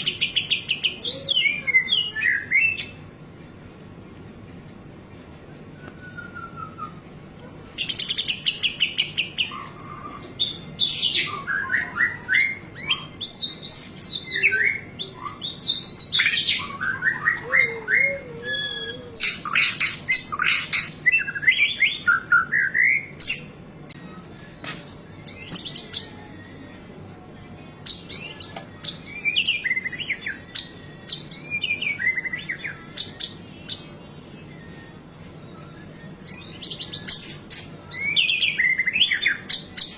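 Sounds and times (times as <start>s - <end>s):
songbird singing whistled phrases: 0.0s - 3.0s, 5.8s - 7.1s, 7.8s - 27.0s, 27.8s - 39.9s.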